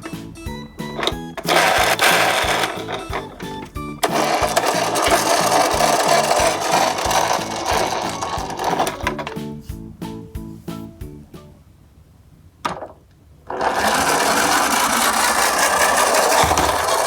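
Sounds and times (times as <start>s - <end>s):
background music with steady beat: 0.0s - 11.7s
toy truck wheels rattling on track: 1.0s - 9.3s, 13.5s - 17.0s.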